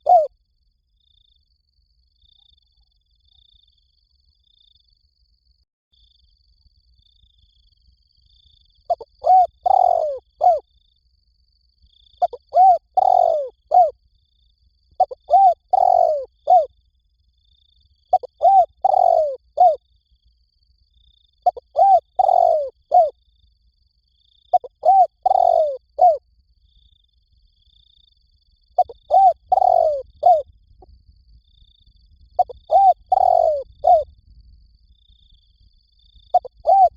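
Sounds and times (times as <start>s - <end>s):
dove cooing: 0.0s - 0.3s, 8.9s - 10.6s, 12.2s - 14.0s, 15.0s - 16.7s, 18.1s - 19.8s, 21.4s - 23.1s, 24.5s - 26.2s, 28.8s - 30.4s, 32.4s - 34.1s, 36.3s - 36.9s.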